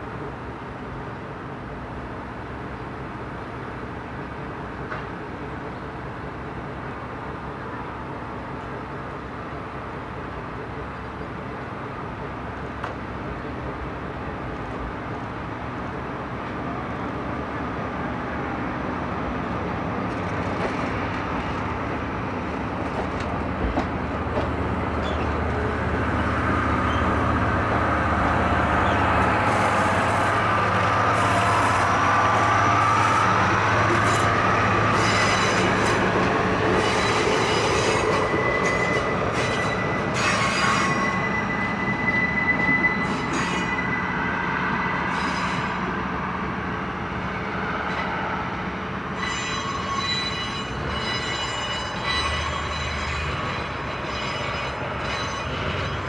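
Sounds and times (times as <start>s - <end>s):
train rail noise: 0.0s - 56.0s
wheels squealing on rails: 22.6s - 46.2s, 49.1s - 56.0s.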